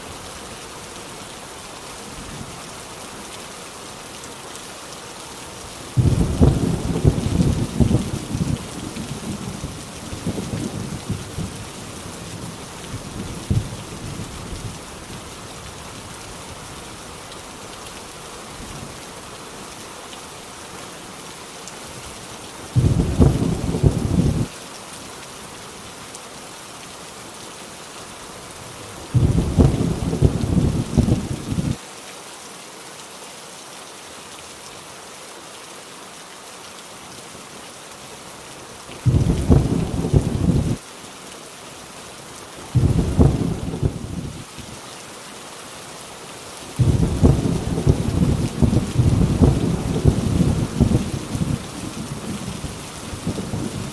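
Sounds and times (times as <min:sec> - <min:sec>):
rain on a tin roof: 0:00.0 - 0:53.9
thunder rumbling: 0:06.0 - 0:11.7, 0:22.8 - 0:24.5, 0:29.2 - 0:31.8, 0:39.1 - 0:40.8, 0:42.8 - 0:44.3, 0:46.8 - 0:53.9.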